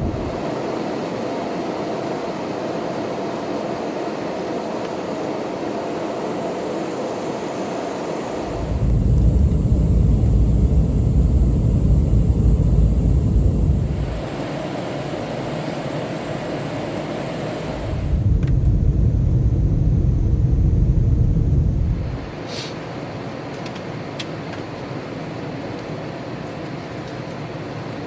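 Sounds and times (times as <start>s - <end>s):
deep engine rumble: 0.0s - 0.4s, 8.4s - 14.8s, 17.6s - 22.4s
jet airliner cabin noise: 0.0s - 28.0s.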